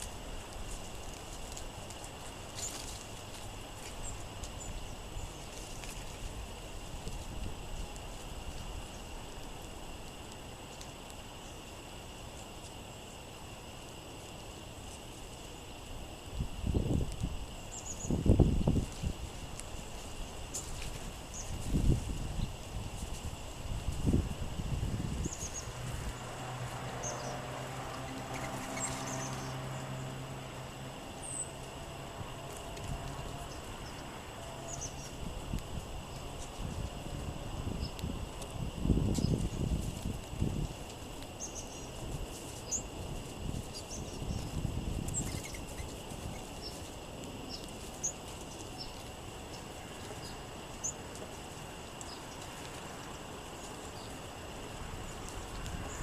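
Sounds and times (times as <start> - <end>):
gusty wind hiss: 0.0 - 56.0
low steady hum: 0.0 - 56.0
songbirds chip calls: 16.7 - 18.7, 25.0 - 31.9, 32.6 - 35.3, 41.4 - 42.0, 43.6 - 51.0.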